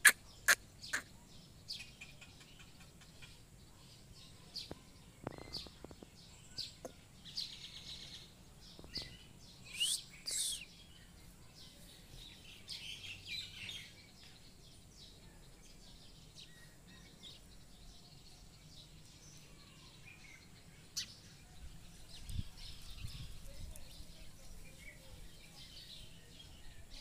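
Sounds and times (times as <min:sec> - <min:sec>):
birds chirping: 0:00.0 - 0:27.0
shrill bird calls: 0:08.9 - 0:10.8.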